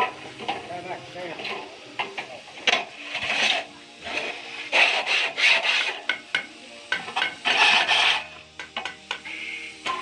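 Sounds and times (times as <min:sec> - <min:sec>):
rough rasping scraping strokes: 0:02.8 - 0:06.2, 0:07.1 - 0:08.4.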